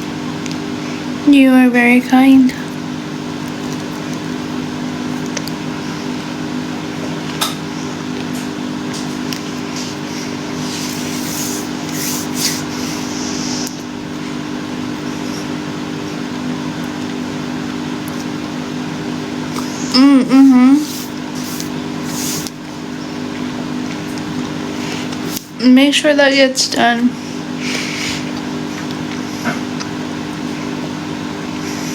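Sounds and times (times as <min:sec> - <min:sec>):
machine hum: 0:00.0 - 0:31.9.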